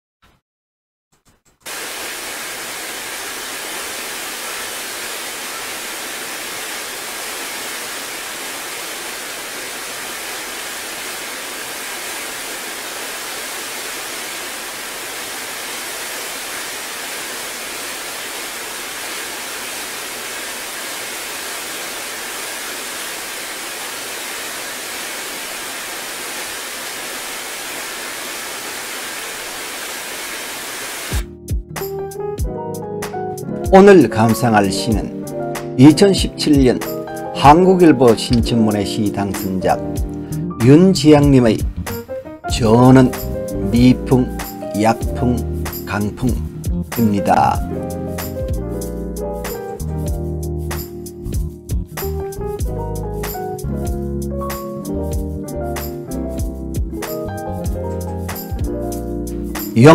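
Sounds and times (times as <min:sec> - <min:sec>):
steady hiss of noise: 0:01.7 - 0:31.3, 0:59.6 - 0:59.9.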